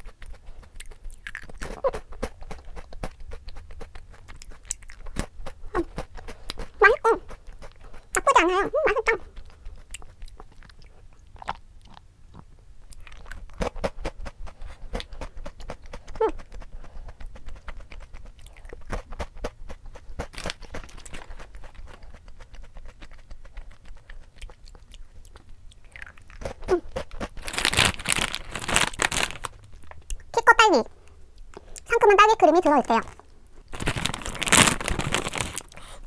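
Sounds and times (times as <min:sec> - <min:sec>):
crunching and chewing snack: 0:00.0 - 0:30.3, 0:33.0 - 0:36.0
plastic snack bag rustling: 0:18.9 - 0:22.1, 0:26.3 - 0:30.1, 0:32.6 - 0:36.0.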